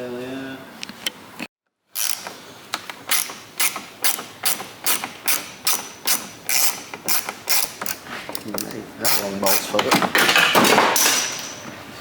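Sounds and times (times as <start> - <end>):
hand ratchet clicking: 2.0 - 9.9.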